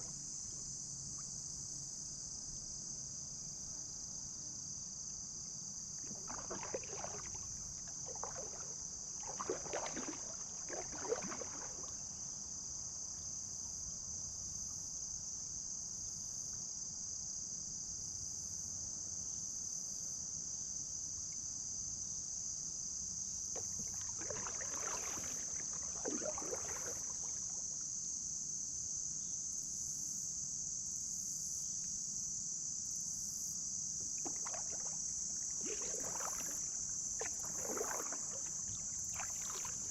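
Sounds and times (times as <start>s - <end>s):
insect chorus: 0.0s - 39.9s
paddle strokes splashing water: 6.0s - 12.2s, 23.6s - 27.8s, 34.0s - 39.9s.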